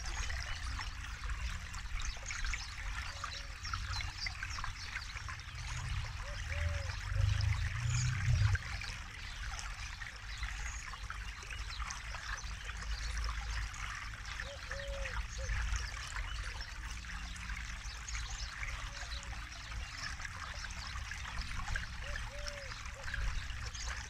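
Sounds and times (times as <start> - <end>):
low rumble: 5.6 - 9.0.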